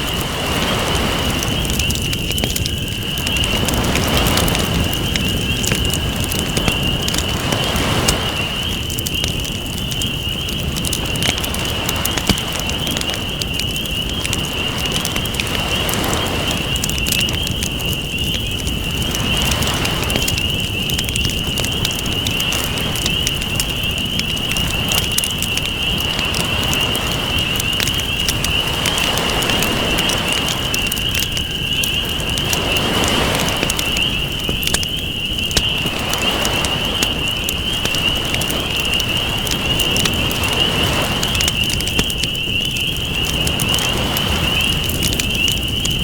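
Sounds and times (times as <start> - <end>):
ocean waves washing in: 0.0 - 1.8, 6.1 - 8.8, 32.0 - 34.6, 35.5 - 41.6
campfire crackling and popping: 0.0 - 46.0.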